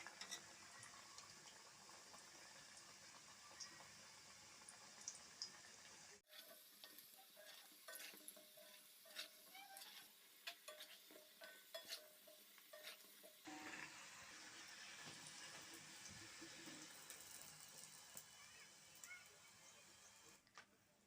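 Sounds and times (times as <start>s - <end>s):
food deep-frying in oil: 0.0s - 20.4s
oil popping and crackling: 14.7s - 19.2s.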